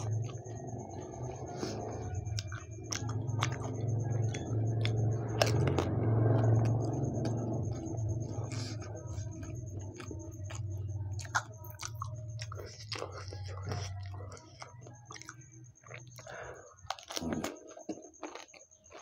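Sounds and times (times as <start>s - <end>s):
steady low hum: 0.0s - 17.5s
wet chewing: 0.0s - 19.0s
sharp crack of biting: 11.2s - 19.0s.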